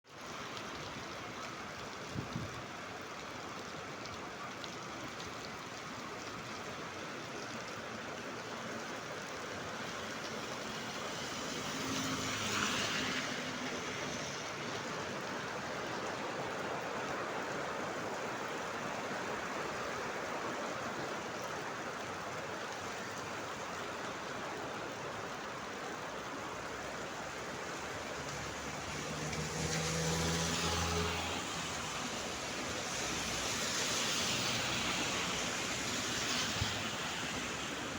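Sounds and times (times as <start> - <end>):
heavy rain: 0.1 - 37.9
vehicle passing: 11.1 - 14.6, 27.9 - 37.6.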